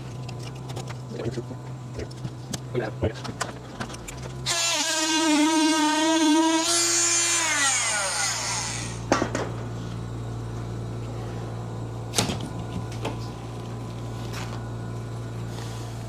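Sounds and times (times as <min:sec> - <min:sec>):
steady low hum: 0:00.0 - 0:16.0
power tool whining: 0:04.1 - 0:09.2.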